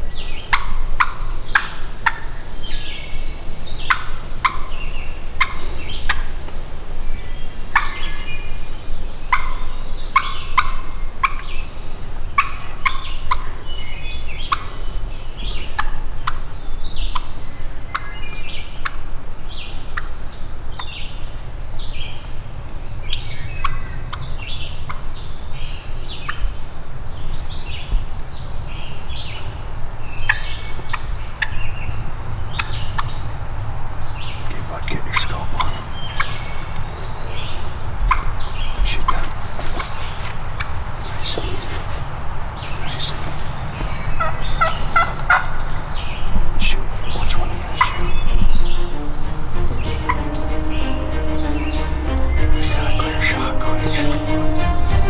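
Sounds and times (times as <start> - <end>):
turkeys calling: 34.1 - 55.0.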